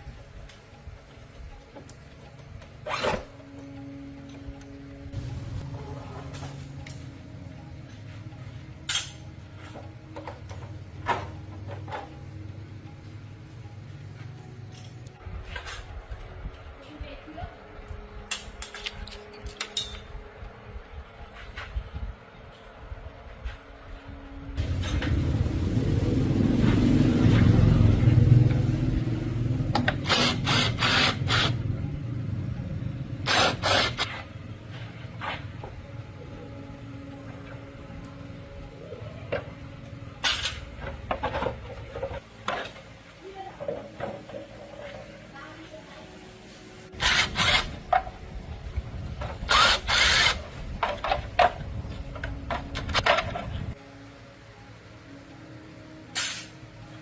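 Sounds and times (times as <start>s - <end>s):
motor rumbling: 24.2s - 45.4s.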